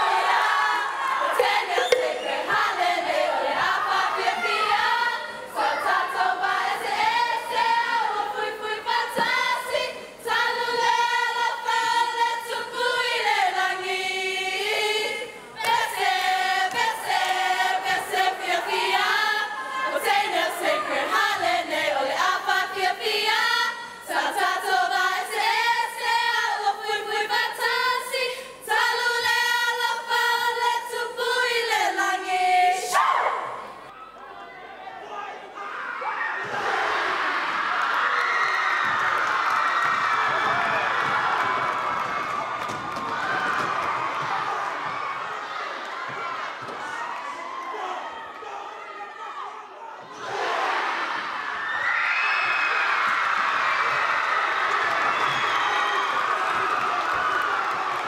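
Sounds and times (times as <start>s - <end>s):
choir singing in harmony: 0.0s - 33.9s, 50.1s - 51.6s.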